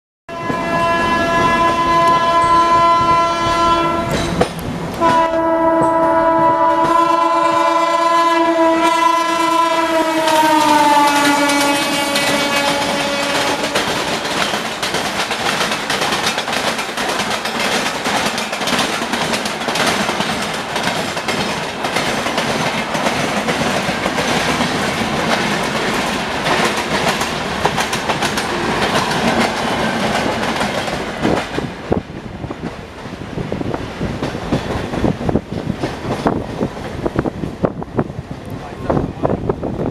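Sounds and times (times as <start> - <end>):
train horn blast: 0.3 - 4.3, 5.0 - 14.6
train wheels clicking on rail joints: 1.3 - 7.3, 10.0 - 39.9.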